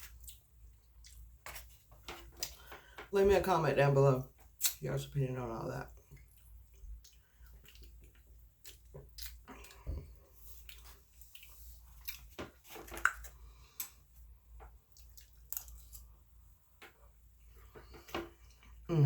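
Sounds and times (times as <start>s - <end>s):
wet chewing and mouth smacks: 0.0s - 2.7s, 4.4s - 4.8s, 6.0s - 14.0s, 14.6s - 16.1s.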